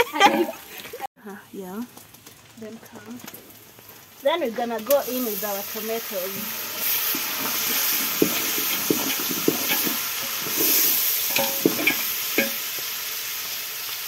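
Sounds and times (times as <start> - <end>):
beef sizzling in a pot: 1.6 - 14.0
spoon knocking against a pot: 7.5 - 12.6.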